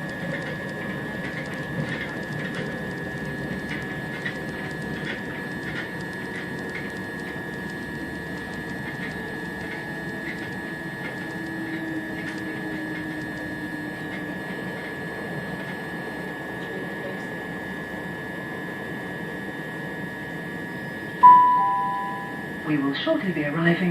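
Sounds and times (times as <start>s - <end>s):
high whine: 0.0s - 14.0s, 21.2s - 22.8s.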